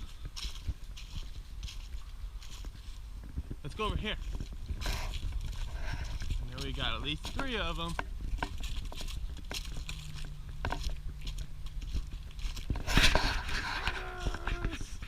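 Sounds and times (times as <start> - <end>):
footsteps through dry leaves: 0.0 - 15.0
loud rustle: 11.9 - 15.0.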